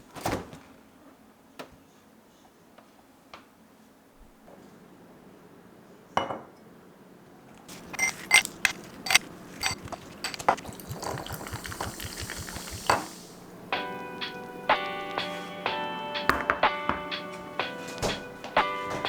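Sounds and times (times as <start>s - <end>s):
dishes and utensils clinking: 7.7s - 13.4s
hiss: 10.8s - 13.5s.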